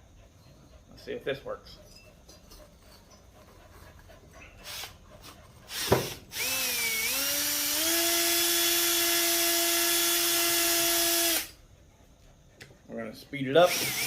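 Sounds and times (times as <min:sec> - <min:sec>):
electric drill whine: 0:05.7 - 0:11.6, 0:13.6 - 0:14.0.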